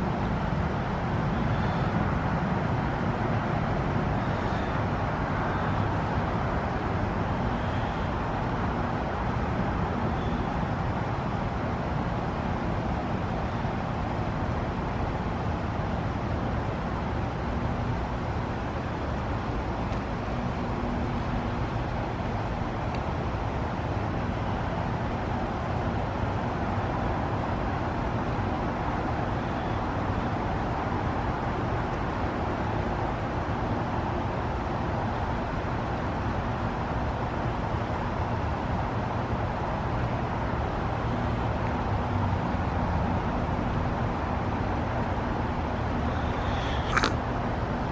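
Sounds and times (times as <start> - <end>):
heat pump rushing noise: 36.6 - 47.9.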